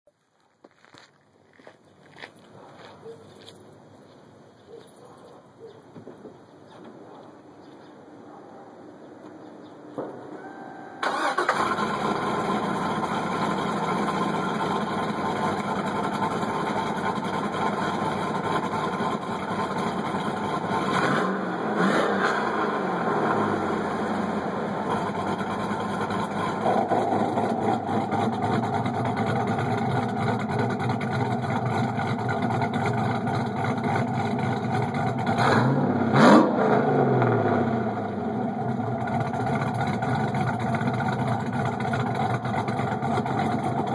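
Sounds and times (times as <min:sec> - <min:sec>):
car engine starting and idling: 0:10.2 - 0:43.9
car engine revving: 0:11.0 - 0:43.9.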